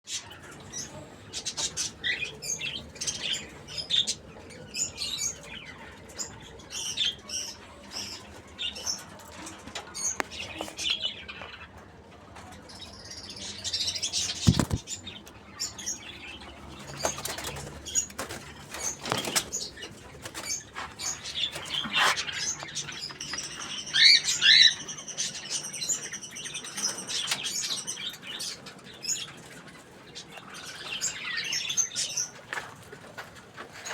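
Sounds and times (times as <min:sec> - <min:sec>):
knocks and rustling: 0:14.4 - 0:14.9.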